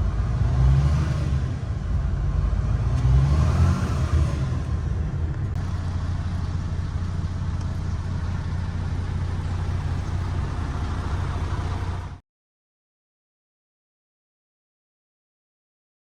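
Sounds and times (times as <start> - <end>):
diesel engine idling: 4.8 - 12.2.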